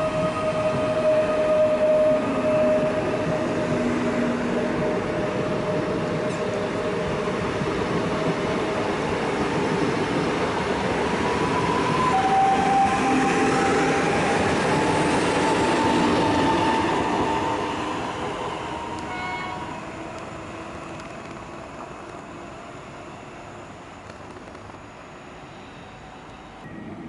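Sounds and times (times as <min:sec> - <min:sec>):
train wheels on rails: 0:00.0 - 0:23.1, 0:24.0 - 0:24.9
brief tone: 0:24.9 - 0:27.0.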